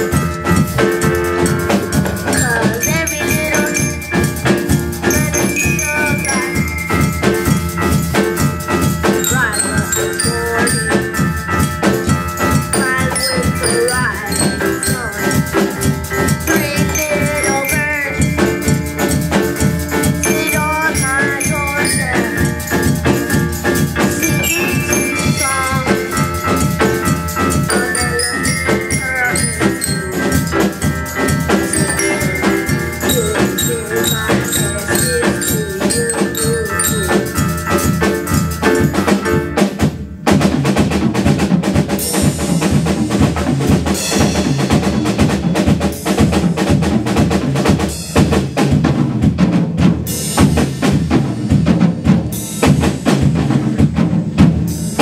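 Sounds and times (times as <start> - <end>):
pitched melody: 0.0 - 39.8
percussion ensemble playing: 0.0 - 55.0.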